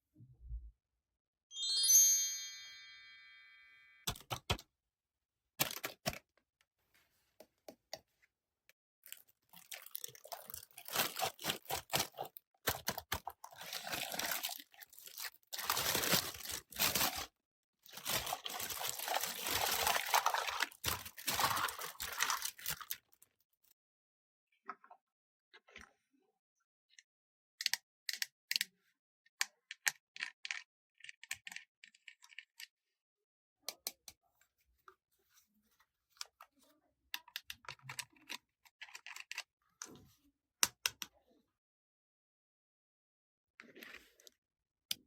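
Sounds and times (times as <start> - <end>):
short bright chime: 1.5 - 3.9
modelling dough crunching and crinkling: 9.0 - 23.6.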